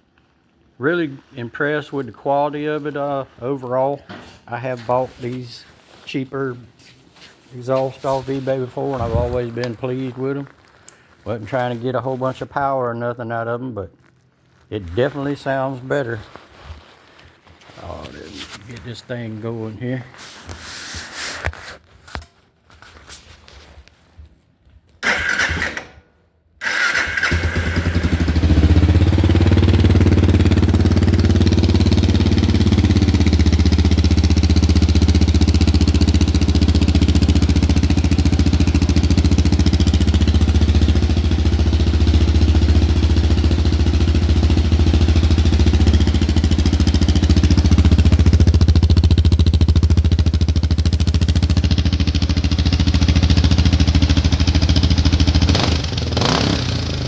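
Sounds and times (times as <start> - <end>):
motorcycle engine starting and idling: 25.0 - 57.0.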